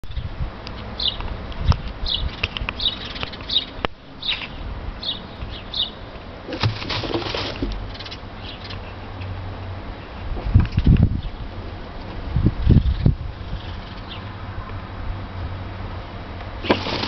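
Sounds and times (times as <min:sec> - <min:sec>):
small bird chirping: 0:00.1 - 0:01.2, 0:02.0 - 0:06.0, 0:07.8 - 0:09.0, 0:12.6 - 0:14.3
straw rustling: 0:06.5 - 0:07.9, 0:16.6 - 0:17.0.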